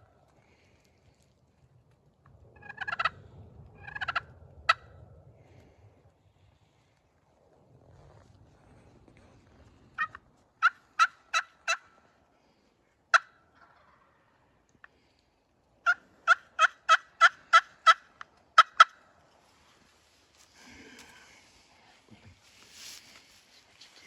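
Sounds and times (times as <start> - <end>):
turkey yelping: 2.6 - 3.2, 3.8 - 4.8, 10.0 - 11.9, 15.8 - 19.0.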